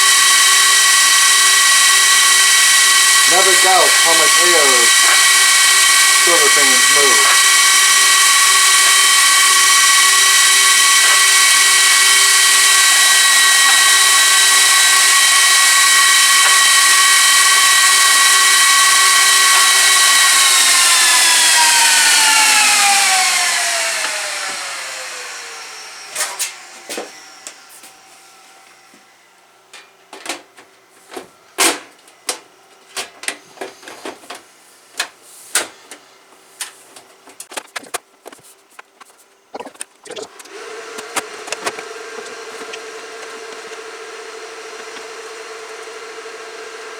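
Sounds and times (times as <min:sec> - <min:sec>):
server fans whining: 0:00.0 - 0:46.9.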